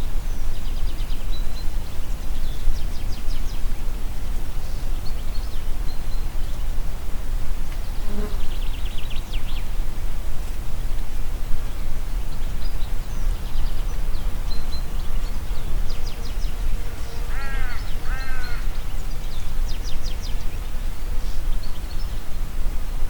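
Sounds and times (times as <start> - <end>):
wind through trees: 0.0 - 23.0
small birds chirping: 11.1 - 22.4
large bird harsh calls: 17.0 - 18.9.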